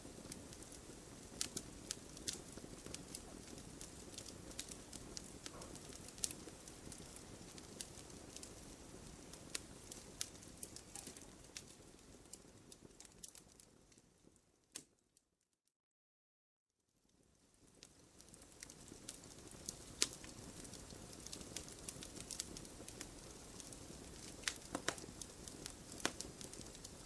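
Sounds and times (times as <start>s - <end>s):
campfire crackling and popping: 0.0s - 15.0s, 17.1s - 27.0s.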